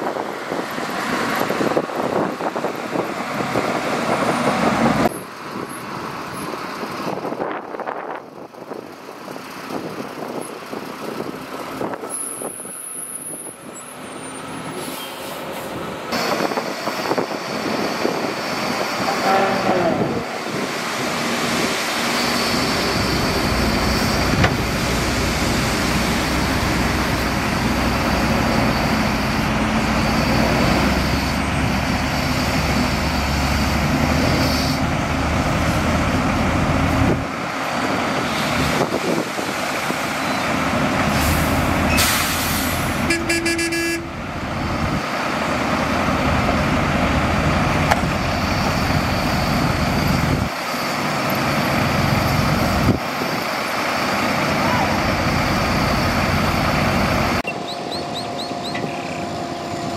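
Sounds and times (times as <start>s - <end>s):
heavy diesel engines running: 0.0s - 59.9s
horn toot: 19.1s - 20.3s, 43.0s - 44.1s
air hiss: 41.1s - 43.0s.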